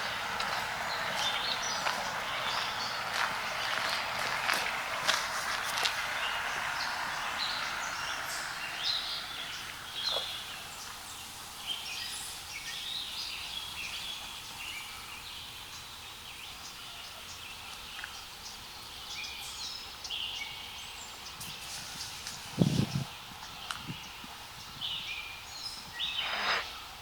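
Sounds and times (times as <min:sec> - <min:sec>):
birds chirping and singing: 0:00.0 - 0:15.0
faint steady hiss: 0:00.0 - 0:27.0.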